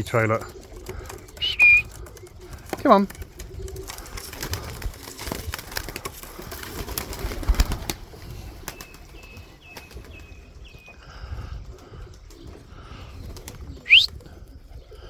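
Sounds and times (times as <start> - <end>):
wing flutters: 0.0 - 10.1, 13.3 - 14.2
pigeons cooing: 0.0 - 15.0
short high peeps: 1.4 - 1.8, 13.9 - 14.1.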